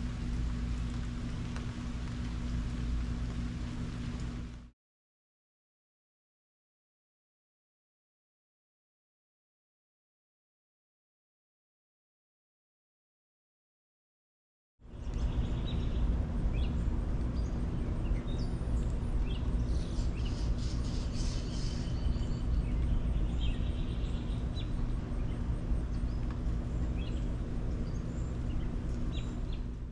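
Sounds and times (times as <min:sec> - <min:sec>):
steady low rumble: 0:00.0 - 0:04.7, 0:14.9 - 0:29.9
birds chirping: 0:14.9 - 0:29.9.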